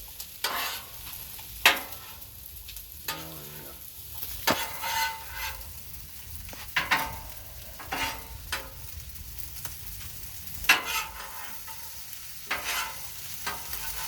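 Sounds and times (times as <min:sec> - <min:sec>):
rice sizzling on a griddle: 0:00.0 - 0:14.0
metal spatula scraping and clacking: 0:00.2 - 0:02.2, 0:03.0 - 0:05.8, 0:06.6 - 0:08.8, 0:10.6 - 0:14.0.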